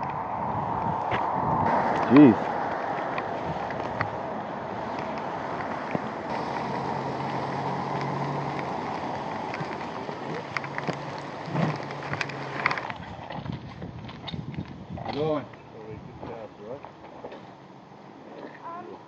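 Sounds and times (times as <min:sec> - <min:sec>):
wind and road noise: 0:00.0 - 0:19.0
motorcycle engine running: 0:04.8 - 0:12.6.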